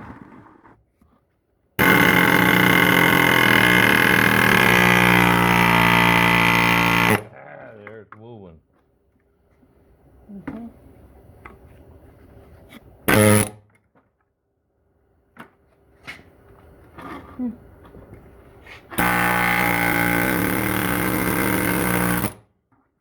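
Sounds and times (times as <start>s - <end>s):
impact wrench running: 1.8s - 7.3s, 13.1s - 13.6s, 19.0s - 22.4s.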